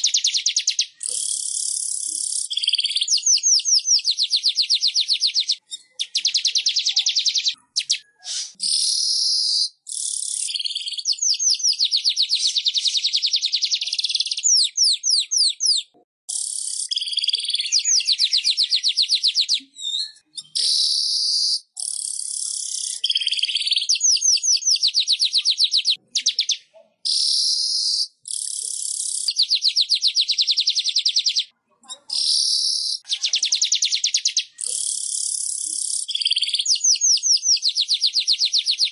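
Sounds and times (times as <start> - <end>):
bird buzzy chattering trills: 0.0 - 3.7, 16.3 - 19.2, 20.4 - 30.0, 31.9 - 38.1.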